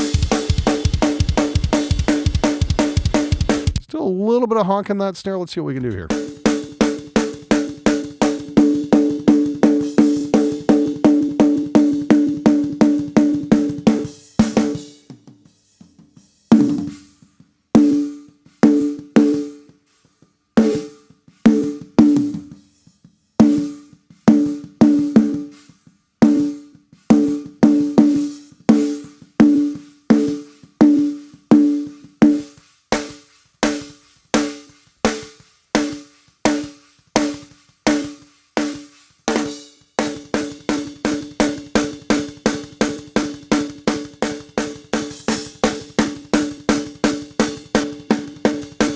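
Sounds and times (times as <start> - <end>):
snare drum hits: 0.0 - 3.8, 32.2 - 48.9.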